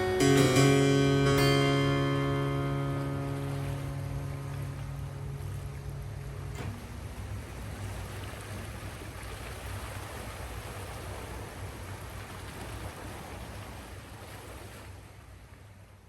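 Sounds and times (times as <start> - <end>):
surf: 0.0 - 9.0
wind: 0.0 - 16.0.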